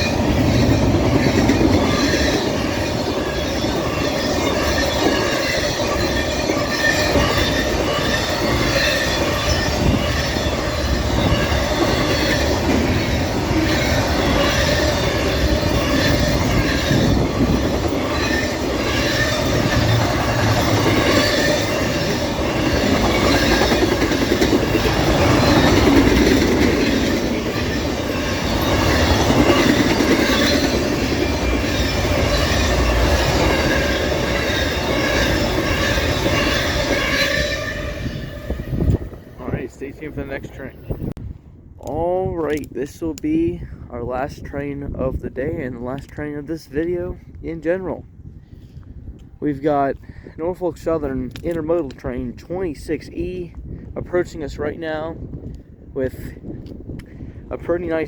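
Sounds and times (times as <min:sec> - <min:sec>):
freight train wheels on rails: 0:00.0 - 0:41.2.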